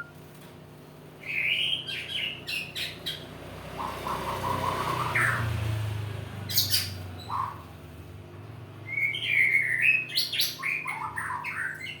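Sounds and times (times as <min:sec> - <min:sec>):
songbird whistling and calling: 0:01.2 - 0:03.2, 0:03.8 - 0:05.5, 0:06.5 - 0:07.6, 0:08.8 - 0:12.0.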